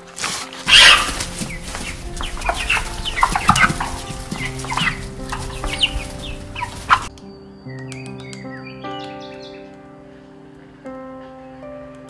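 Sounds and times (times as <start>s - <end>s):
background music with held notes: 0.0s - 12.0s
hens clucking: 0.7s - 7.1s
loud rustling burst: 0.7s - 7.1s.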